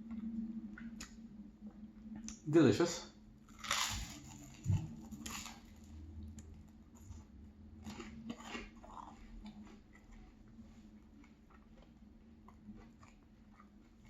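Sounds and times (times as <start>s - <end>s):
crunching and chewing toast: 3.4s - 14.0s.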